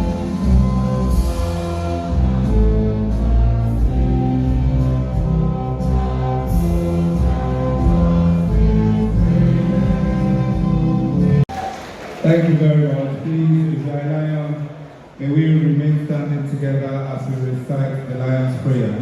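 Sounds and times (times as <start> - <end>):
music with sustained bass: 0.0 - 11.4.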